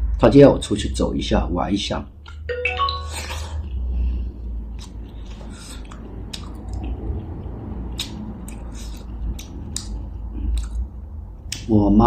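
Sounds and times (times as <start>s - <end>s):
chewing: 4.7s - 11.7s.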